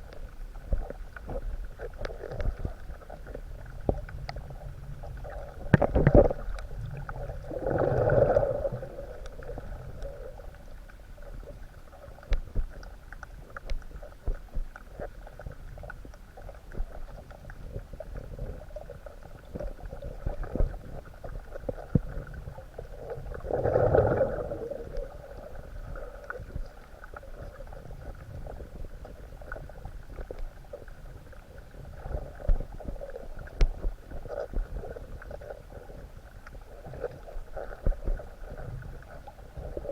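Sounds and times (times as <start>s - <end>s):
low underwater rumble: 0.0s - 39.9s
small underwater clicks: 0.0s - 39.9s
whooshing water swells: 6.3s - 10.7s.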